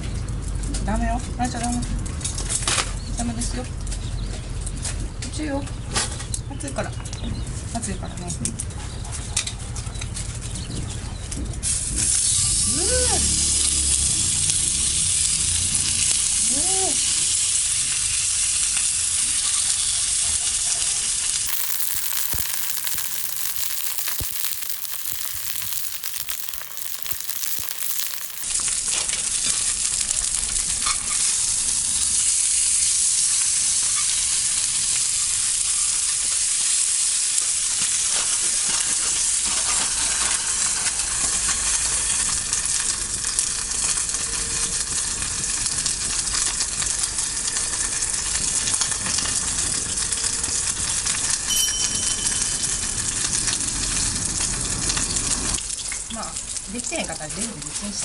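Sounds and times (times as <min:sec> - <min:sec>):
food sizzling in a skillet: 0:21.5 - 0:28.5.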